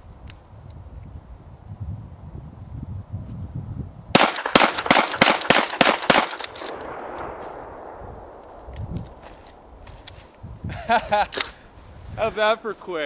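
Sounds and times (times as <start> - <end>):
shotgun firing rapidly: 4.2 - 8.0
rolling gunshot echo: 4.2 - 9.7.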